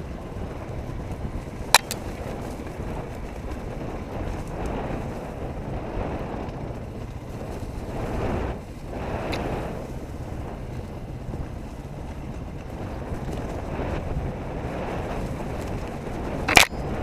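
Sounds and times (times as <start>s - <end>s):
dirt bike engine running: 0.0s - 17.0s
wind buffeting microphone: 0.0s - 17.0s
sharp click: 16.5s - 16.8s.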